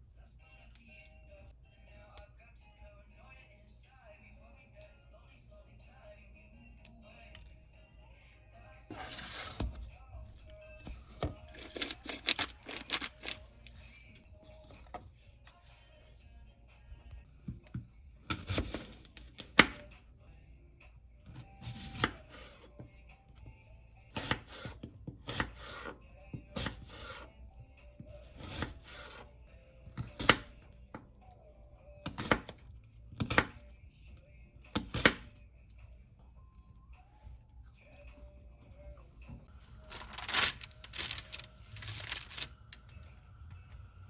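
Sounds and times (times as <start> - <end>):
knife chopping on cutting board: 18.3 - 19.8, 24.2 - 26.0, 30.0 - 30.6, 32.0 - 32.6, 33.2 - 33.6, 34.7 - 35.3.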